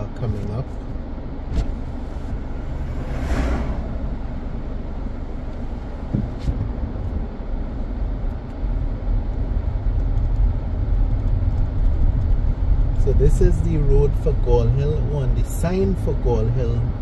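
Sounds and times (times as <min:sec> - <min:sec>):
car road noise rumble: 0:00.0 - 0:17.0
vehicle rushing past: 0:01.4 - 0:06.3.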